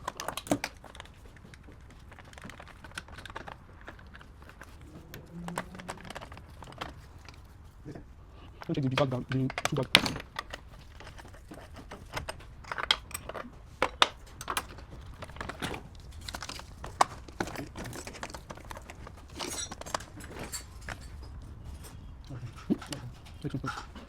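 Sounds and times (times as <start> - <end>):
low hum: 4.6 - 8.6
small hard objects clinking: 8.7 - 21.4.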